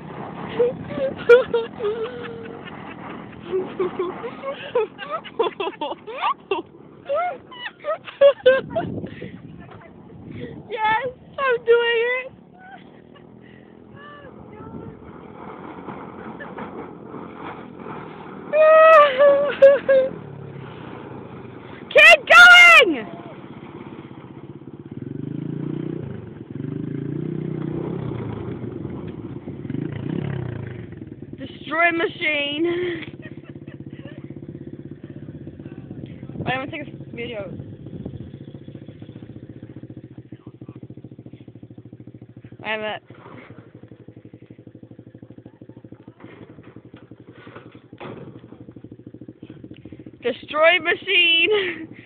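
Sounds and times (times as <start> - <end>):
atv engine running under load: 0.0 - 52.0
engine idling: 28.2 - 52.0.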